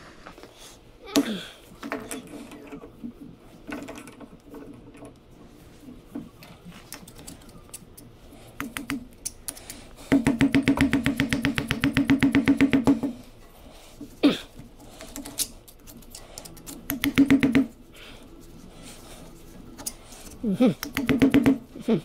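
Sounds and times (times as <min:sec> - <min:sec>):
metallic clicking and scraping: 0:19.7 - 0:21.1.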